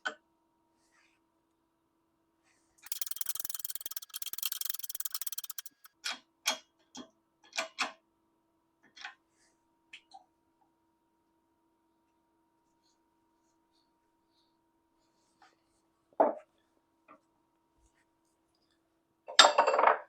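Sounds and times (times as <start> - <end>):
fast run of clicks: 2.8 - 5.9
hand tools clicking and tapping: 2.9 - 5.9.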